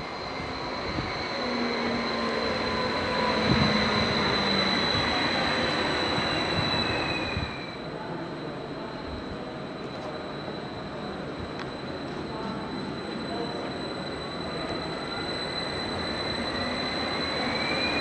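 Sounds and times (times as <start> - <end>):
train wheels rumbling on rails: 0.0 - 8.1
steady high whine: 0.0 - 18.0.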